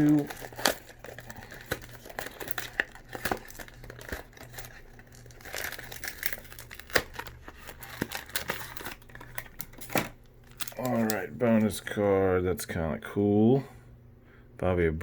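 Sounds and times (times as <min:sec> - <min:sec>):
foil wrapper tearing and crinkling: 0:00.0 - 0:11.8.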